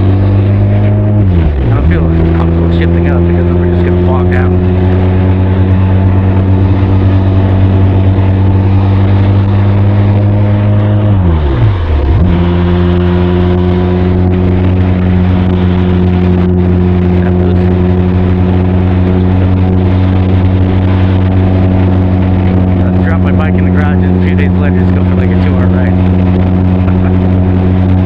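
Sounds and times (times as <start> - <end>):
motorcycle engine cruising: 0.0 - 28.0.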